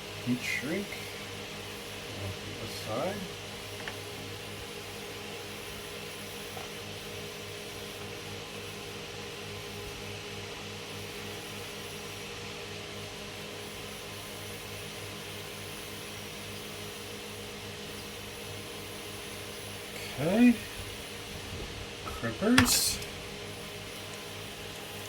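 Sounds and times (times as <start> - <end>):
fan humming: 0.0 - 10.0, 17.0 - 25.0.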